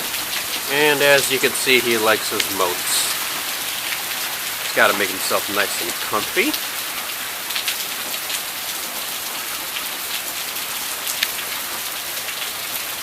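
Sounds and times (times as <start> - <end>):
heavy rain pouring: 0.0 - 13.0
raindrops ticking close by: 0.0 - 13.0.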